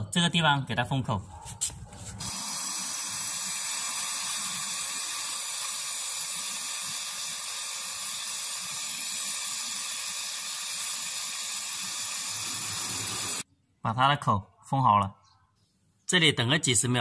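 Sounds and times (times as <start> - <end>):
torch flame hissing: 2.2 - 13.4.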